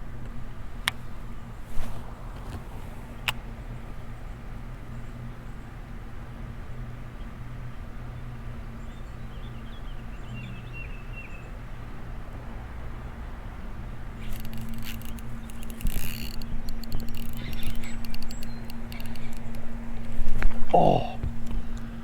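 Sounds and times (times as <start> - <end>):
fishing reel clicking and whining: 14.2 - 20.2.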